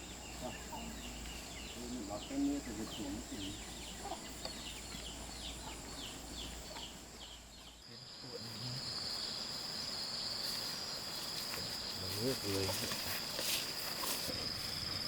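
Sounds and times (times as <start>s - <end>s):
high insect drone: 0.0s - 15.0s
insects trilling: 0.0s - 15.0s.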